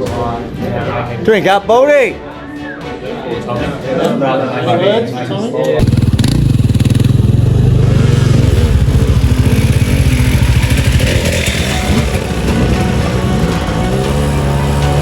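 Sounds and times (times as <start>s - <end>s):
dirt bike engine revving: 5.8s - 15.0s.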